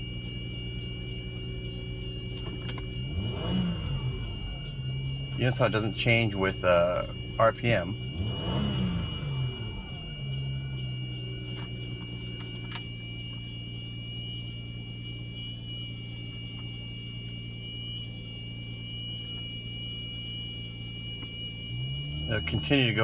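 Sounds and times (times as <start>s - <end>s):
car engine idling: 0.0s - 17.6s
steady high-pitched whine: 0.0s - 23.0s.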